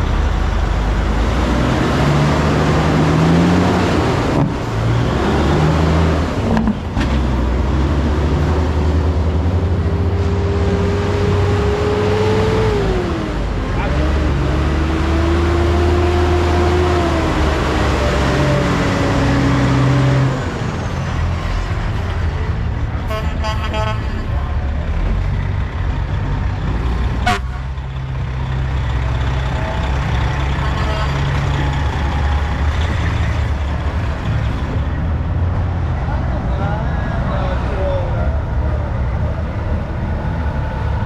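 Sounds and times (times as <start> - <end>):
diesel engines running: 0.0 - 41.0
truck air horn: 23.0 - 24.3, 27.2 - 27.8.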